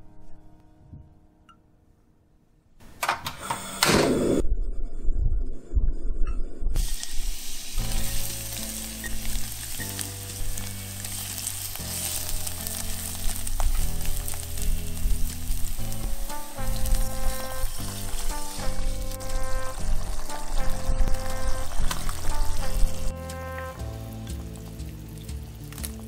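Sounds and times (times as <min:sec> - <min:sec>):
food sizzling in hot oil: 0:06.8 - 0:26.0.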